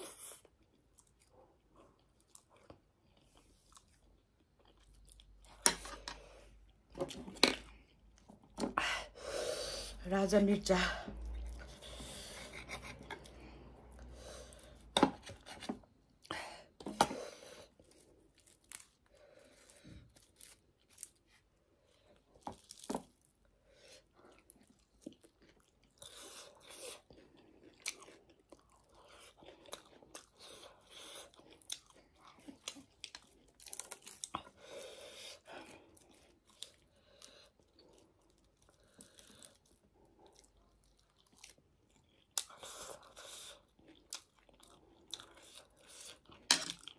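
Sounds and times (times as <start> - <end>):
crunchy chewing: 24.2 - 34.6.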